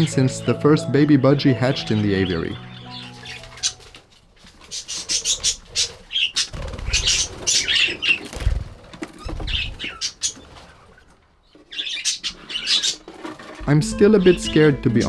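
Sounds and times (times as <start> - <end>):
budgerigars chattering: 0.0 - 8.6, 9.2 - 10.6, 11.7 - 13.1
wing flaps: 3.3 - 11.2.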